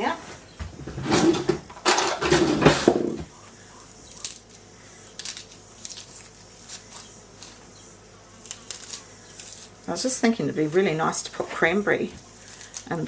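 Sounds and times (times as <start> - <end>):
handling noise: 0.0 - 3.4.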